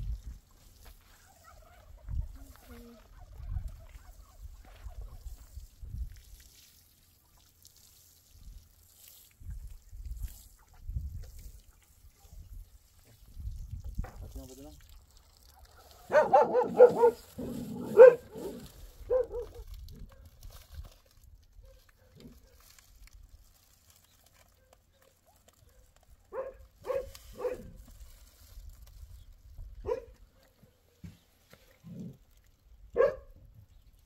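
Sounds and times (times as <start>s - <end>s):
dog barking: 15.7s - 19.6s, 25.7s - 27.8s, 29.8s - 30.2s, 33.0s - 33.3s.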